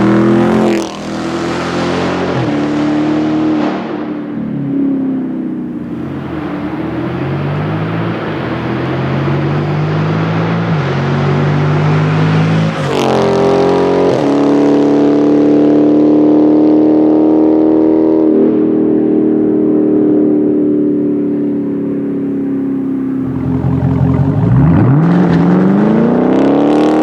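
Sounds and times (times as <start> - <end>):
car engine revving while driving: 0.0 - 4.3, 5.7 - 21.2, 21.8 - 27.0.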